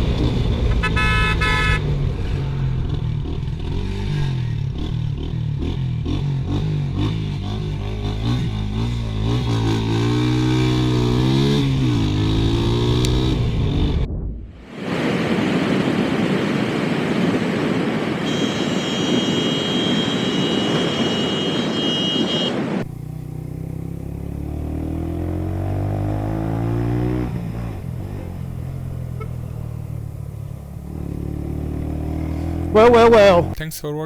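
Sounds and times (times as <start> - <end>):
vehicle engine accelerating: 0.0 - 14.6, 22.8 - 33.7
rushing wind and road noise: 0.0 - 33.6.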